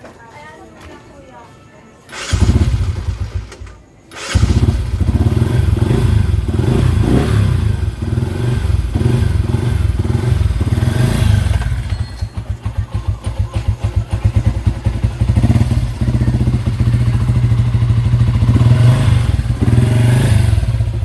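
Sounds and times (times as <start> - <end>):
motorcycle engine revving: 2.1 - 21.0.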